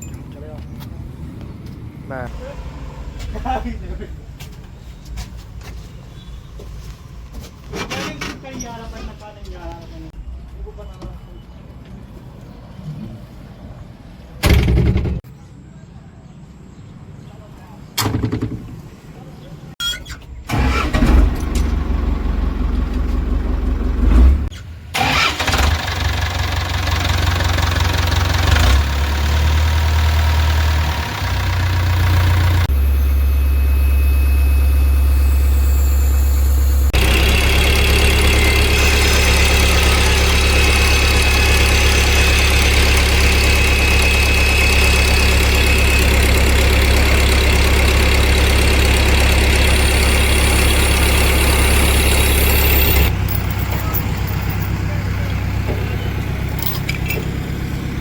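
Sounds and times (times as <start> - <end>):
heavy diesel engine running: 2.1 - 5.8, 20.5 - 58.0.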